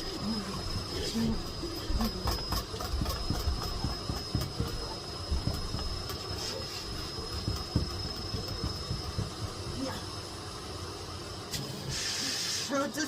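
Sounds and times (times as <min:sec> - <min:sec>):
vacuum cleaner whining: 0:00.0 - 0:13.0
nozzle knocking and scraping: 0:01.8 - 0:09.8.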